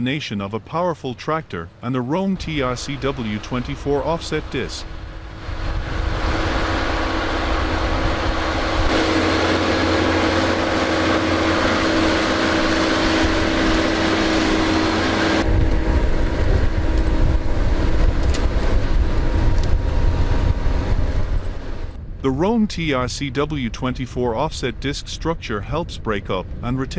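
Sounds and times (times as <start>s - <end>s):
tractor engine under load: 1.9s - 22.0s.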